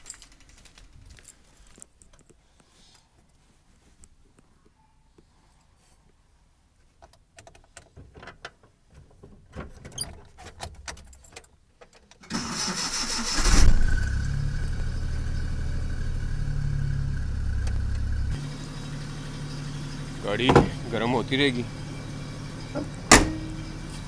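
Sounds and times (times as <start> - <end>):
clicking and rattling in car cab: 7.0 - 12.3, 20.4 - 21.0, 22.7 - 24.0
car engine cranking and idling: 12.3 - 24.0.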